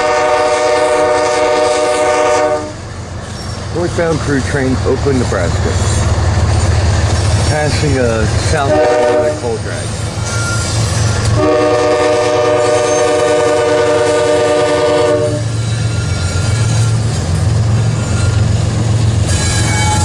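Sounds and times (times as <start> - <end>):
locomotive air horn chord: 0.0 - 2.8, 8.6 - 9.6, 11.4 - 15.5
freight train rumble and wheel clatter: 0.0 - 20.0.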